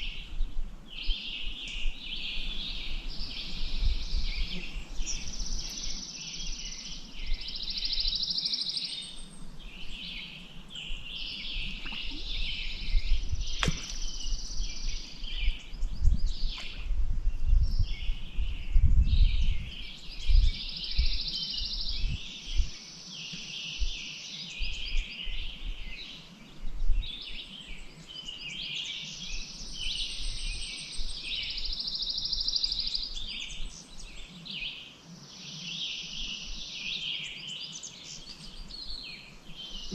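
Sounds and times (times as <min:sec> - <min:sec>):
songbirds singing: 0:00.0 - 0:39.9
sharp click: 0:13.6 - 0:14.0.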